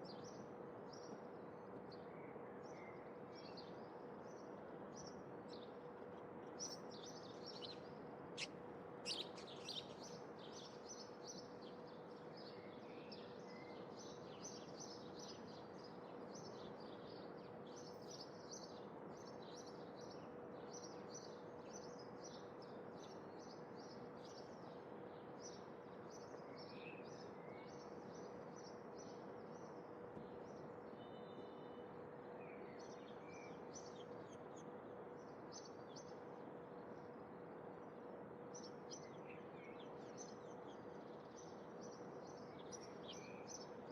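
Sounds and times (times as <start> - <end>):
faint steady hum: 0.0 - 43.9
small birds chirping: 6.4 - 24.6, 38.5 - 43.9.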